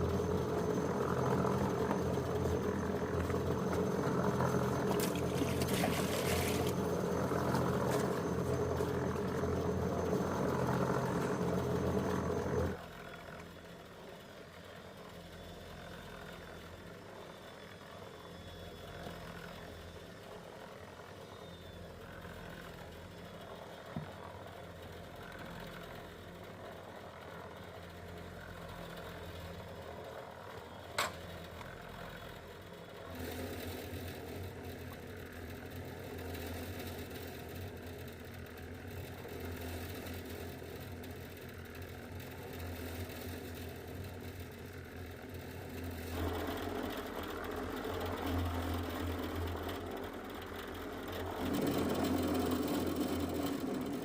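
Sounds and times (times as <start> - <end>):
low hum: 0.0 - 12.9, 45.2 - 54.0
engine running: 0.0 - 54.0.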